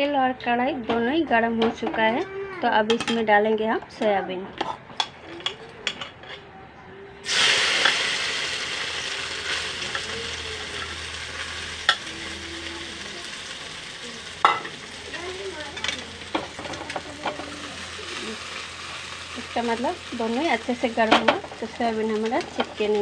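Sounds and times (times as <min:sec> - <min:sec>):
food frying in hot oil: 0:07.3 - 0:23.0.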